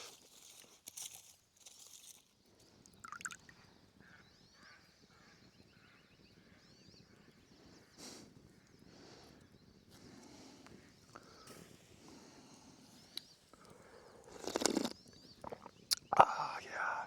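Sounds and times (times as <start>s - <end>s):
light clicks and rustles: 0.0s - 2.4s
distant birds chirping: 2.6s - 17.0s.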